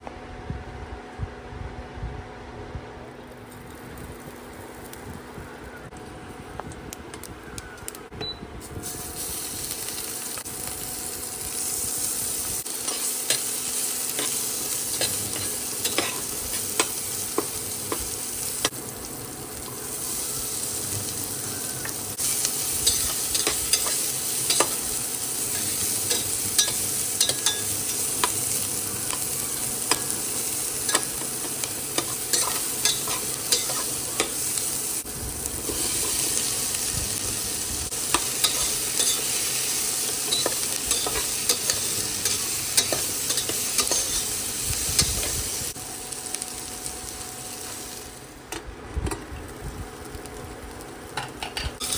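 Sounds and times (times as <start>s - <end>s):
food sizzling in a pan: 8.6s - 48.6s, 49.2s - 51.9s
utensil clicking and scraping pan: 25.6s - 28.4s, 40.3s - 44.4s.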